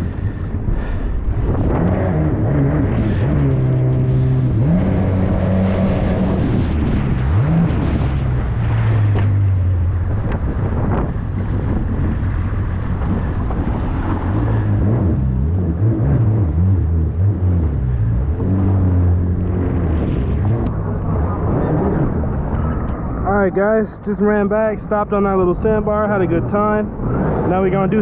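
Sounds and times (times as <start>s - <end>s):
jet ski engine running: 0.0s - 23.3s
wind buffeting microphone: 0.0s - 28.0s.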